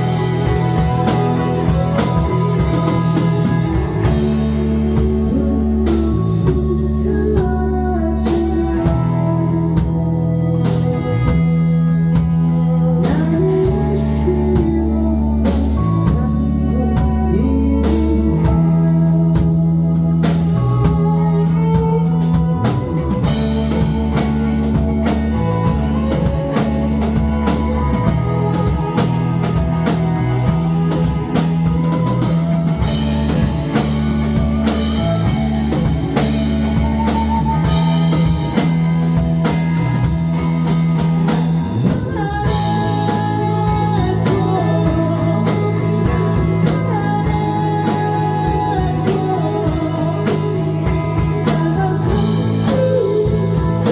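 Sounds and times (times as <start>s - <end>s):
bass guitar: 0.0s - 53.9s
drum kit: 0.0s - 53.9s
electric guitar: 0.0s - 53.9s
person singing: 0.0s - 53.9s.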